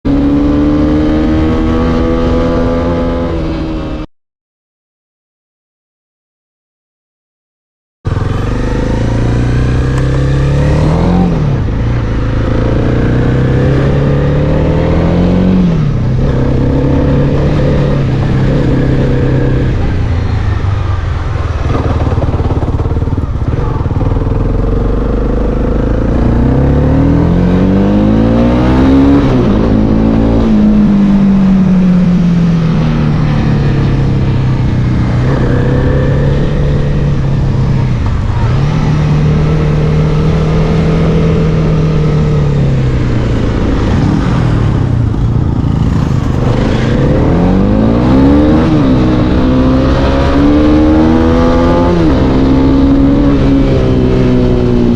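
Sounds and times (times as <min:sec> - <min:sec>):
motorcycle engine revving: 0:00.1 - 0:04.1, 0:08.1 - 0:54.9.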